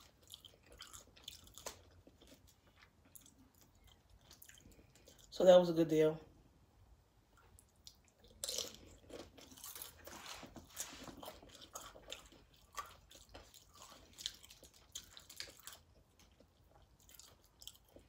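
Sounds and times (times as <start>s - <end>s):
tortilla chips crunching: 0.0s - 5.4s, 7.8s - 18.0s.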